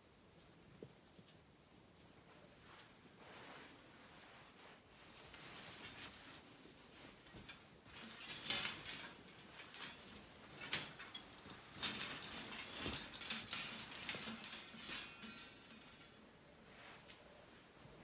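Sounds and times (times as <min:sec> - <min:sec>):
handling rustles: 0:02.0 - 0:18.0
light clinks: 0:07.3 - 0:16.4.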